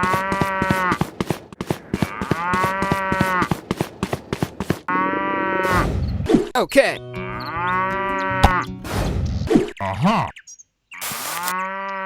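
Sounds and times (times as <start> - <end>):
cow mooing: 0.0 - 1.0, 1.9 - 3.5, 4.9 - 5.8, 7.2 - 8.6.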